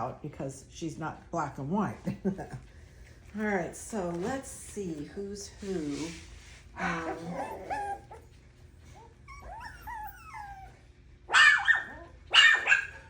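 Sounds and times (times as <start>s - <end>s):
puppies whining: 6.8s - 13.0s
puppy yapping: 9.0s - 13.0s.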